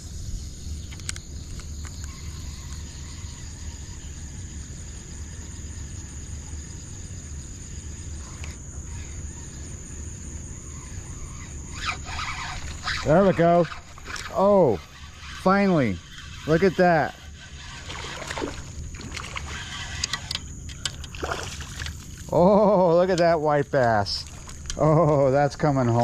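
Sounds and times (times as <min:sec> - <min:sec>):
high-pitched insect chorus: 0:00.0 - 0:26.0
low outdoor rumble: 0:00.0 - 0:26.0
faint clicks: 0:00.9 - 0:02.8.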